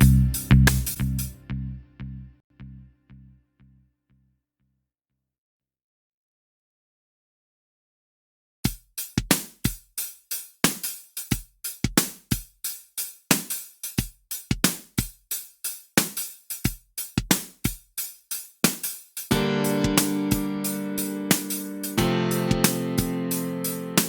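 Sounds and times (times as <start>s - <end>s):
drum machine beat: 0.0s - 1.4s, 8.7s - 24.0s.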